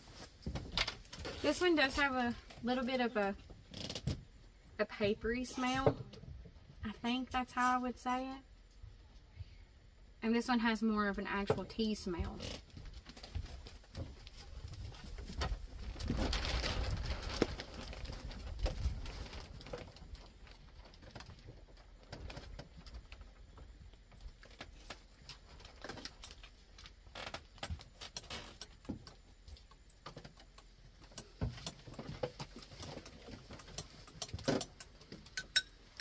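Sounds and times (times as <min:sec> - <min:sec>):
cups and spoons clicking: 0:35.4 - 0:35.8.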